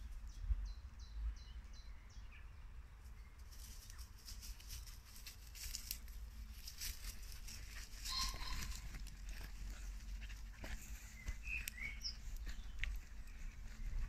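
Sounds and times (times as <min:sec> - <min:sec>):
steps through dry leaves: 0:03.5 - 0:14.0
songbird high repeated notes: 0:08.1 - 0:08.9.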